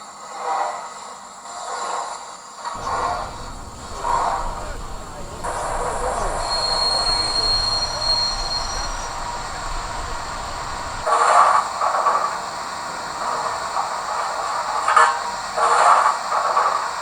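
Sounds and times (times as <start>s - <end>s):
model train steam hiss: 2.8s - 11.1s
steam locomotive chuffs: 2.8s - 11.1s.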